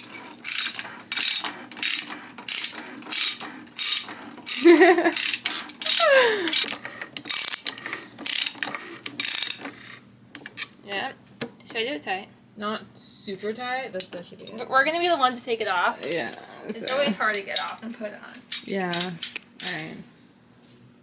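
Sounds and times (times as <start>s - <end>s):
ratchet wrench clicking: 0.0s - 9.8s.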